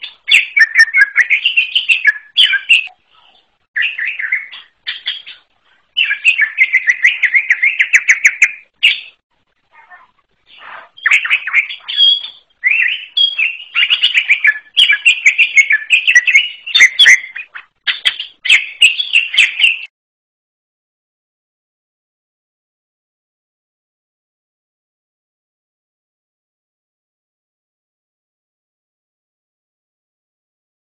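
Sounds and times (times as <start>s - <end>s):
bird singing chattering song: 0.0s - 9.2s, 9.8s - 19.9s.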